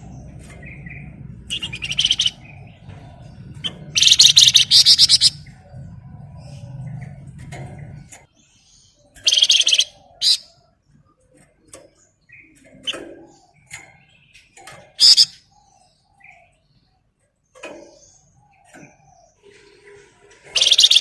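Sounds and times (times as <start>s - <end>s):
songbird rapid chattering: 0.0s - 5.7s, 9.1s - 10.5s, 12.3s - 15.8s, 20.5s - 21.0s
soft bird chirps: 0.0s - 21.0s.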